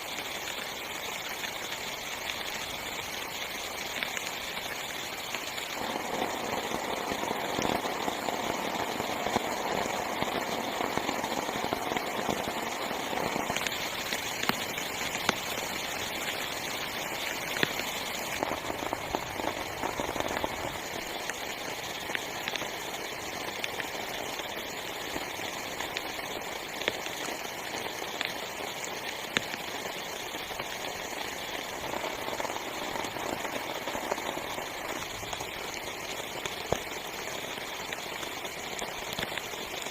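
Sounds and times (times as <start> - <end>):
heavy rain on tent fabric: 0.0 - 39.9.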